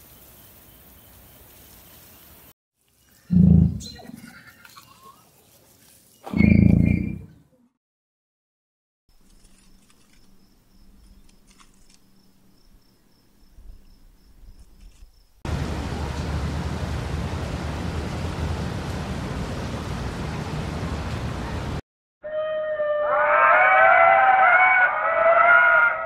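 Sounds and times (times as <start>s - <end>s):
insect chirring: 9.1s - 15.4s
loud steady rushing noise: 15.5s - 21.8s.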